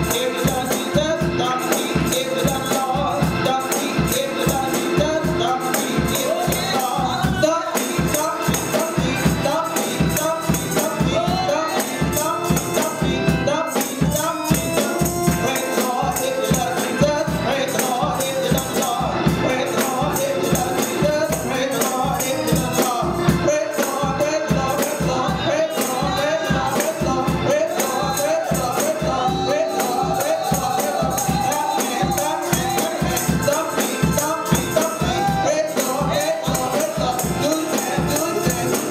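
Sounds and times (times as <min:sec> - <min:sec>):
rapid percussion beat: 0:00.0 - 0:38.9
voices singing gospel: 0:00.0 - 0:38.9.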